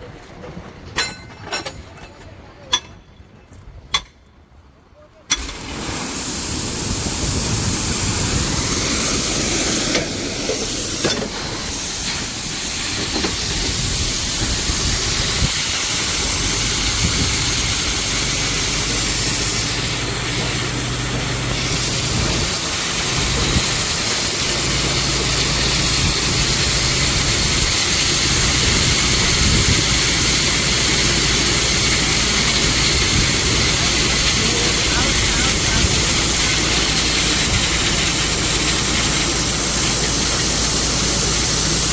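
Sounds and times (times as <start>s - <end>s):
diesel truck engine running: 5.3s - 41.9s
loud steady hiss: 5.3s - 41.9s.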